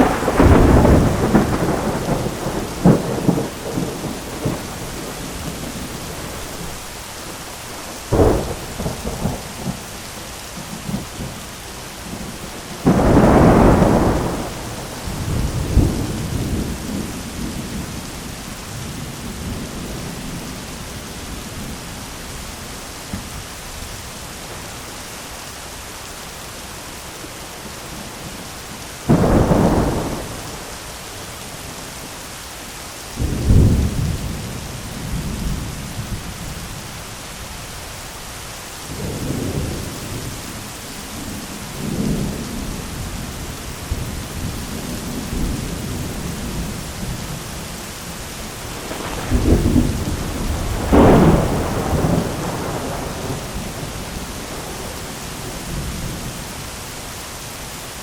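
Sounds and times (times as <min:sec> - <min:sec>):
thunder claps and rumbles: 0:00.0 - 0:06.8, 0:07.9 - 0:10.0, 0:12.1 - 0:20.7, 0:29.1 - 0:30.8, 0:33.2 - 0:36.7, 0:38.9 - 0:40.5, 0:41.1 - 0:56.5
heavy rain on an umbrella: 0:00.0 - 0:58.0.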